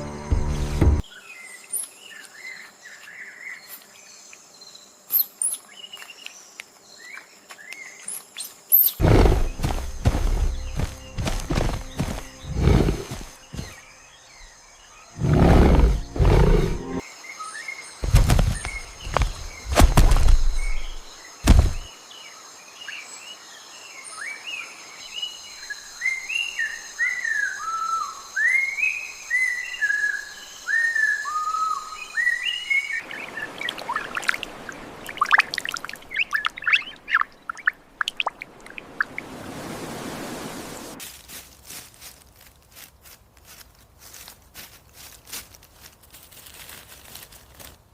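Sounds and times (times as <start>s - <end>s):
high insect drone: 1.2s - 22.7s
low rustling thumps: 9.0s - 13.8s, 18.0s - 21.9s
songbird whistling: 35.1s - 38.4s.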